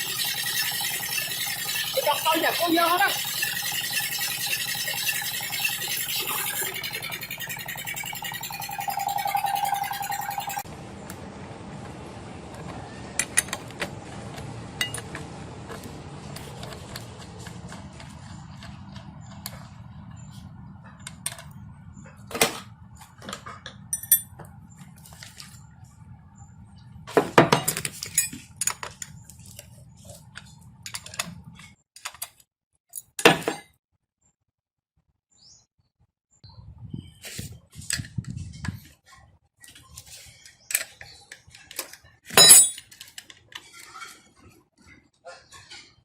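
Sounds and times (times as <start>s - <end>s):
metal parts clinking: 42.4s - 43.2s.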